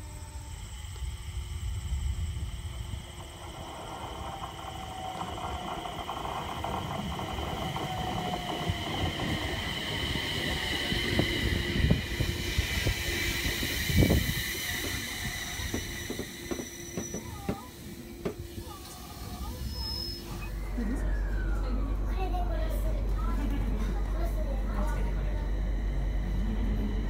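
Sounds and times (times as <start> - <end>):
high electric inverter whine: 0.0 - 27.0
train wheels rumbling: 0.0 - 27.0
low falling tone: 19.2 - 23.4.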